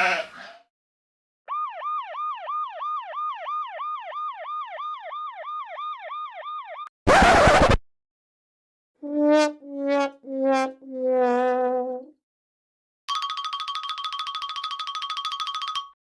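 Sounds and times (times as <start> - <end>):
electronic siren yelping: 1.5 - 7.8.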